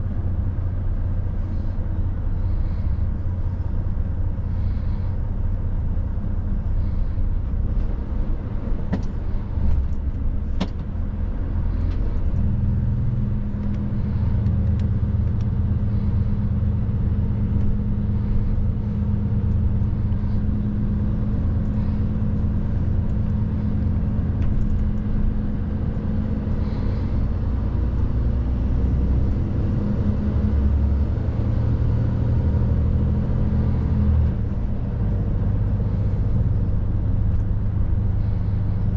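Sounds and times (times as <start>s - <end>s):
road noise: 0.0s - 38.9s
truck diesel engine droning: 0.0s - 38.9s.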